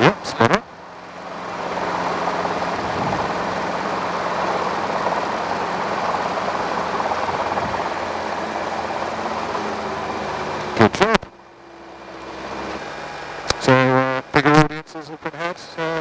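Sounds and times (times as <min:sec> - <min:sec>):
helicopter engine and rotor noise: 0:00.0 - 0:13.8
faint low hum: 0:13.4 - 0:16.0.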